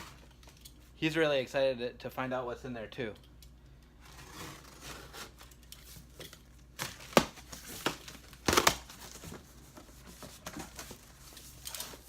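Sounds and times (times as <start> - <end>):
packaging crinkling and tearing: 6.6 - 9.3.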